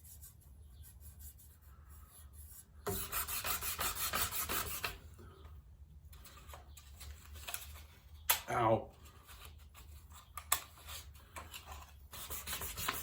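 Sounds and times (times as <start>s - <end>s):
sandpaper scraping back and forth: 0.0s - 5.0s, 12.1s - 13.0s.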